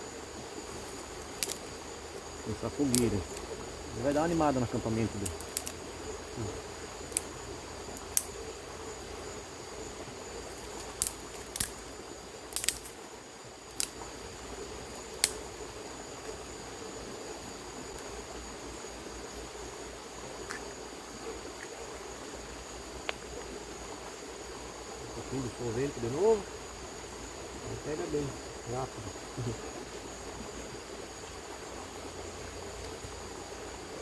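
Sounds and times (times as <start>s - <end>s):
insects chirring: 0.0s - 34.0s
sharp clicks and snaps: 1.3s - 1.7s, 2.9s - 3.5s, 5.2s - 5.8s, 10.8s - 11.8s, 12.5s - 13.0s, 13.7s - 14.0s, 15.2s - 15.4s.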